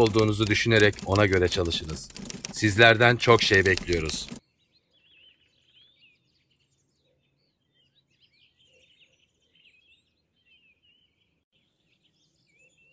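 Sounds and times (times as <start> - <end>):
faint birdsong: 4.0 - 12.9.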